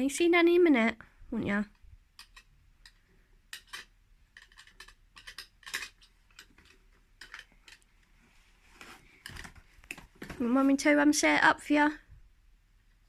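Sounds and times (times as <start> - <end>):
toy clicking and rattling: 2.2 - 7.9.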